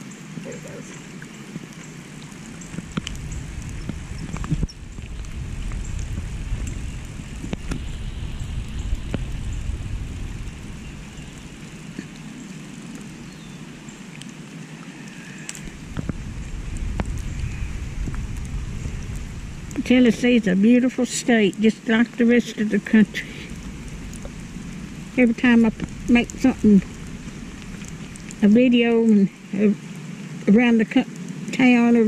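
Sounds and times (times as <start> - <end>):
rain falling on a river: 0.0 - 32.0
low rumble on microphone: 0.5 - 14.0, 15.2 - 29.6.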